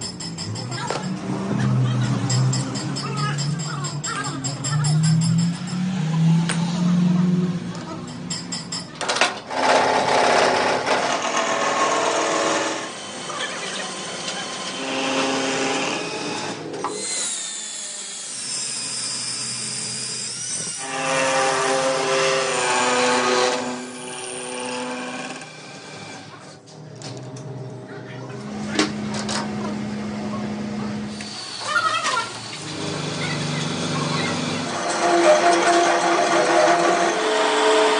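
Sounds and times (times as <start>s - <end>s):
power tool motor whining: 9.5s - 26.4s, 31.1s - 37.9s.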